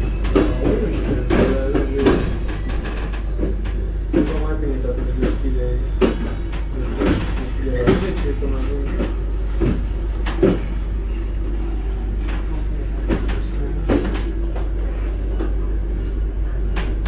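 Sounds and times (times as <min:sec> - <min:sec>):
knocks and rattles: 0:00.0 - 0:11.1, 0:12.2 - 0:14.8
train carriage rumbling: 0:00.0 - 0:17.0.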